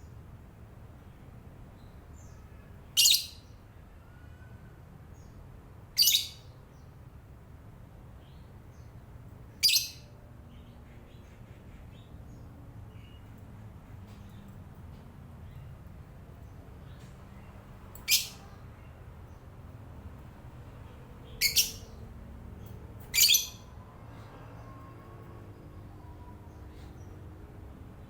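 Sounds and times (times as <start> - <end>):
bird short chirps: 23.2 - 23.6.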